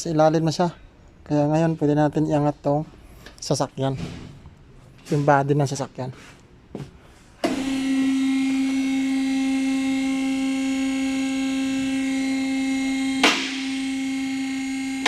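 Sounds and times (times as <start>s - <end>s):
hydraulic pump motor humming: 7.4s - 15.0s.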